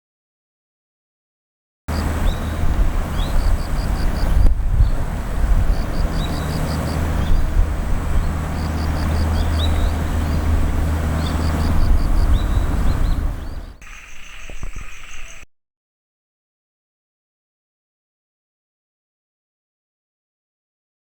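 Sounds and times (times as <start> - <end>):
steady low rumble: 1.9 - 13.8
small bird singing: 1.9 - 15.5.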